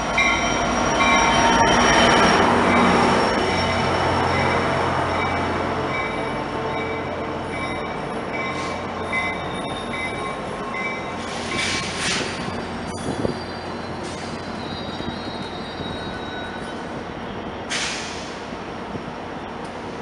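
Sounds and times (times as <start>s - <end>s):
train wheels squealing: 0.0s - 18.5s
train rumble: 0.0s - 20.0s
brief hisses: 17.7s - 18.4s.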